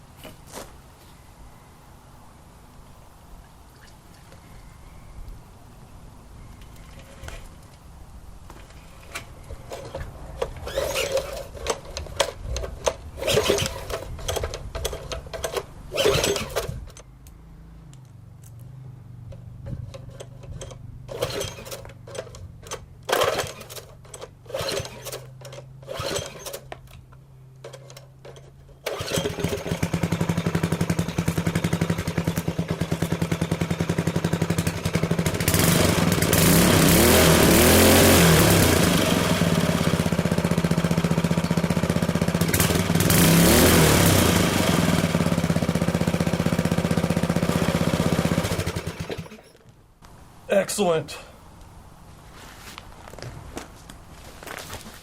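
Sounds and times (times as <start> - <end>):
small engine cranking and sputtering: 9.0 - 17.1, 19.3 - 27.0, 27.6 - 49.6
small engine running: 10.6 - 16.8, 19.8 - 26.7, 28.8 - 49.4.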